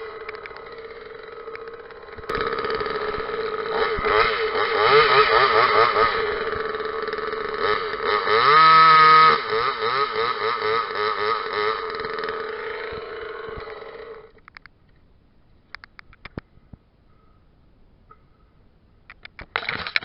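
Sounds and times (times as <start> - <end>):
chainsaw revving: 0.0 - 14.4, 19.5 - 20.0.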